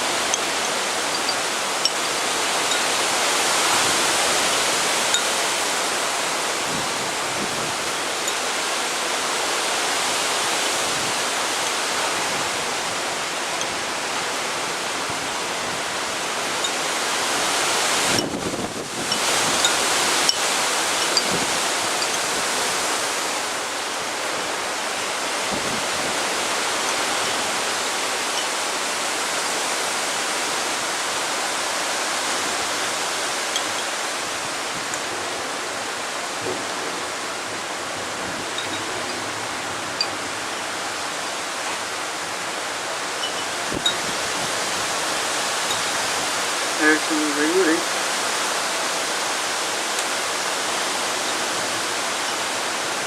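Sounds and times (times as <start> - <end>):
strong wind rushing: 18.0 - 20.2.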